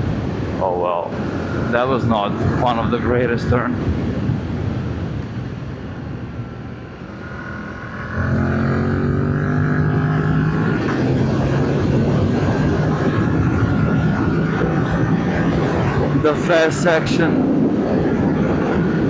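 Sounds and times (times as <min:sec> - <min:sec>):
motorcycle engine accelerating: 0:07.0 - 0:16.2.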